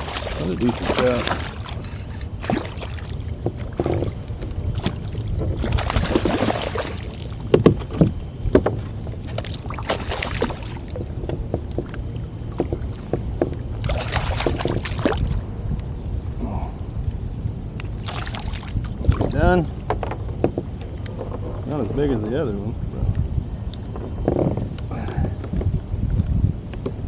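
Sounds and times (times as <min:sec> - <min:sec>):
water sloshing around kayak: 0:00.0 - 0:15.7, 0:17.9 - 0:22.0
wind on microphone: 0:00.0 - 0:27.0
knocks against hull: 0:02.4 - 0:15.2, 0:19.0 - 0:21.7, 0:23.9 - 0:25.8.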